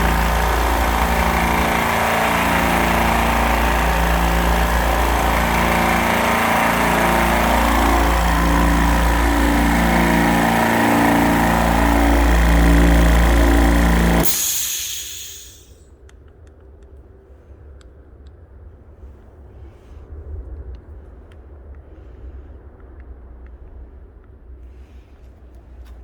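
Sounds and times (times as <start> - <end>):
air compressor running: 0.0 - 15.7
compressor hiss winding down: 0.0 - 15.7.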